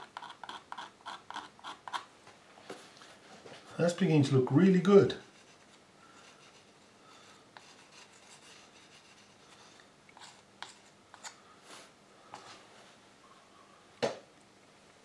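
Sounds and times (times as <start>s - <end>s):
paintbrush rubbing on paper: 5.2s - 11.9s.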